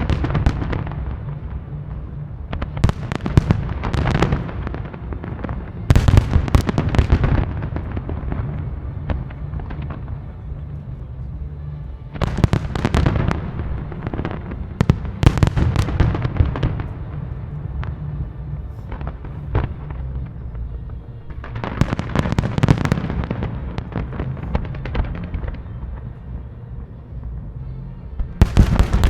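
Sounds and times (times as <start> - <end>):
fireworks bangs and crackling: 0.0 - 10.9, 12.1 - 26.9, 28.2 - 29.0
low rumble: 0.0 - 29.0.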